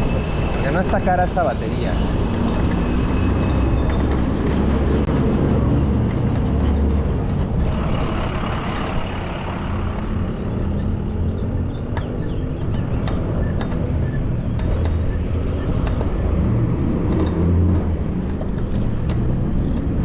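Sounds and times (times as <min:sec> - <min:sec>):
city traffic: 0:00.0 - 0:20.0
thin high squeal: 0:06.8 - 0:09.7.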